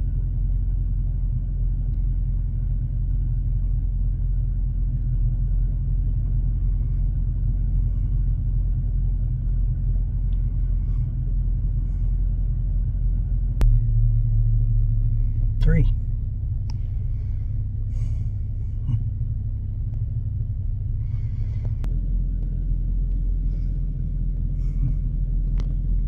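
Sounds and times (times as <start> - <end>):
vehicle interior rumble: 0.0 - 26.0.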